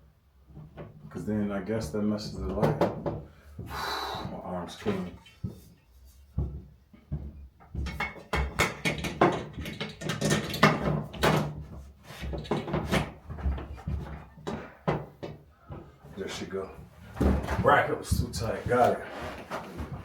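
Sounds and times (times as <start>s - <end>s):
light fixture knocks and rattles: 6.4s - 16.2s.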